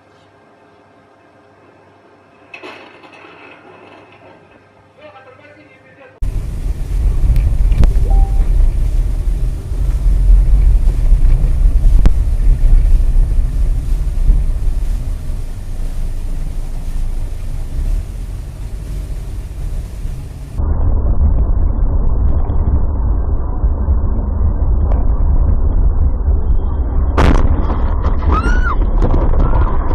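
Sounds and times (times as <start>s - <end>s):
vehicle engine and road rumble: 6.2s - 29.9s.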